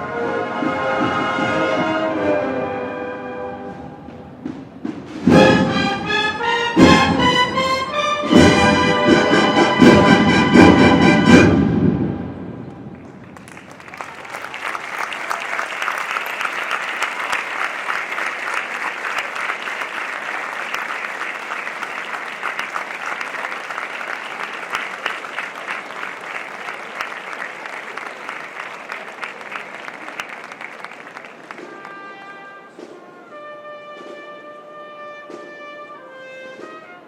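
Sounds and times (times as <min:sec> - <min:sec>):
audience applause: 0:12.9 - 0:32.0.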